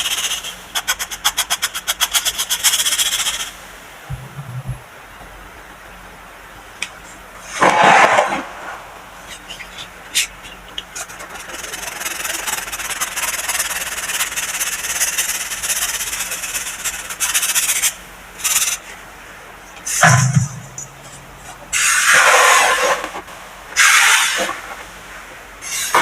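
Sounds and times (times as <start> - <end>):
baking soda crushed and rubbed: 10.9 - 17.9.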